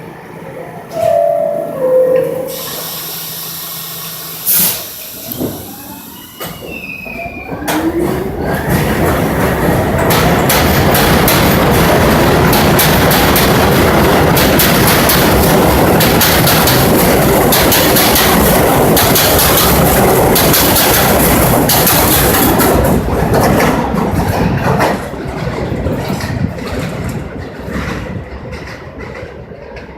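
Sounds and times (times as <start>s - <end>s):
subway train rumbling: 0.0s - 29.9s
wheels clacking over rail joints: 7.6s - 29.9s.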